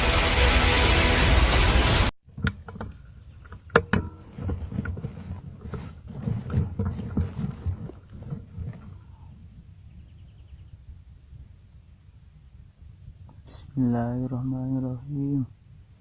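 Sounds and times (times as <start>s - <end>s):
handling clicks and knocks: 2.3s - 8.9s
rustling: 2.3s - 9.3s.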